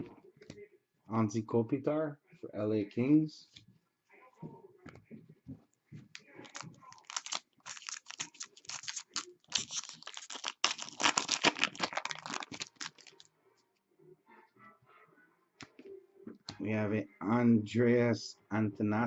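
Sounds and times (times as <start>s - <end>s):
trading cards crinkling and clicking: 6.1s - 13.3s.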